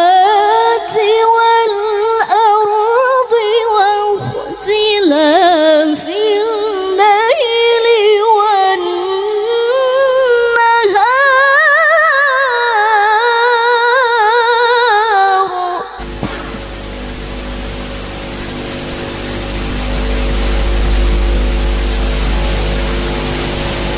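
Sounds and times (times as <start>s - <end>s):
steady hiss: 16.0s - 23.9s.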